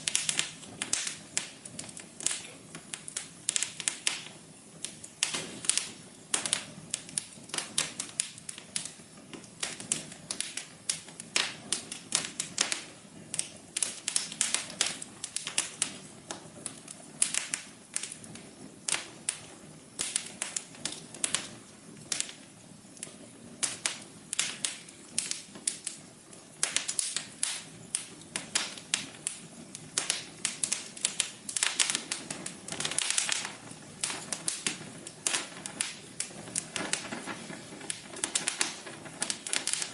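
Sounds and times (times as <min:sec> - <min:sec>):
fire snapping and popping: 0:00.0 - 0:39.9
rush of burning logs: 0:00.0 - 0:39.9.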